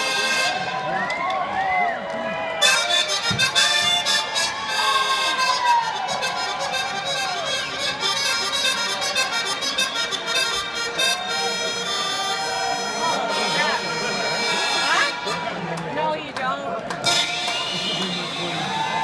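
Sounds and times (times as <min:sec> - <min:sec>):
live rock band playing: 0:17.0 - 0:19.0.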